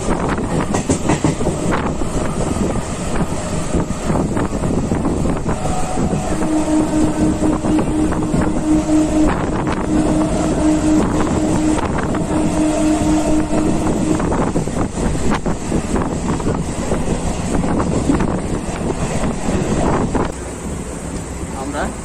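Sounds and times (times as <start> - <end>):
wind buffeting microphone: 0.0 - 20.4
train wheels on rails: 0.0 - 22.0
steady low tone: 3.6 - 17.1.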